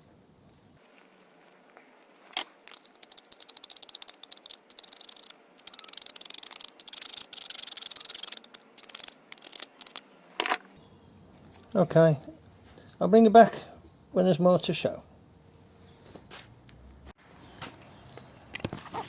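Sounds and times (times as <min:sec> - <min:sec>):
scrubbing small metal parts: 0:02.2 - 0:10.7.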